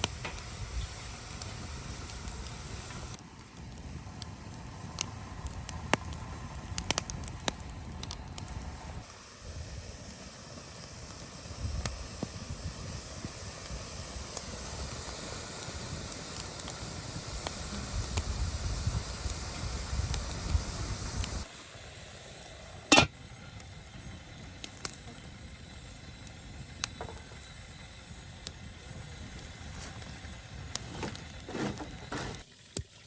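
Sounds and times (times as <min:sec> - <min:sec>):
fire sharp pops: 0:00.0 - 0:09.0, 0:10.0 - 0:21.5
cooking fire crackling and hissing: 0:00.0 - 0:33.0.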